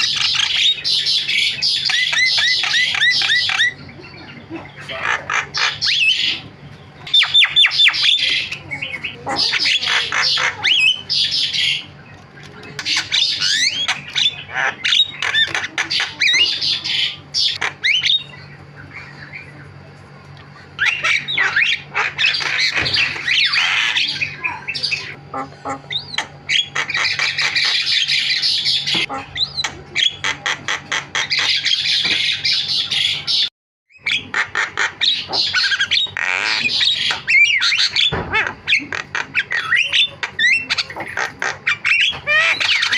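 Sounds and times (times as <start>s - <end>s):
myna chattering: 1.9s - 19.6s.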